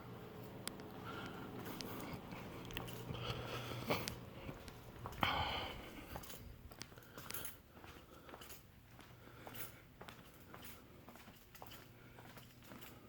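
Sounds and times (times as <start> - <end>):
ceiling fans running: 0.0 - 13.0
electrical motor hum: 0.0 - 13.0
breathy sniff: 1.0 - 4.5.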